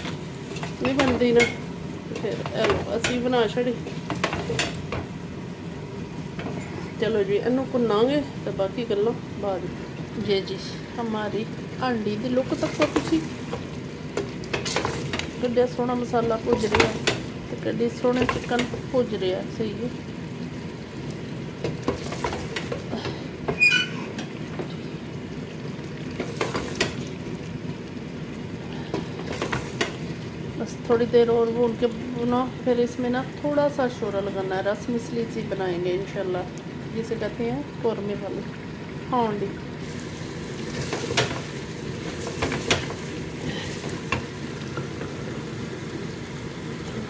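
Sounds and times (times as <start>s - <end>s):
chicken sizzling in a pot: 0.0s - 47.0s
brief high squeak: 23.6s - 24.1s.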